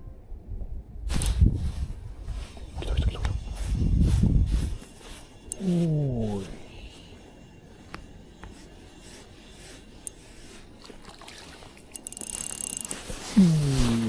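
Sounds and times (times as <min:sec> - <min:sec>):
fishing reel clicking and rattling: 0:11.9 - 0:13.1.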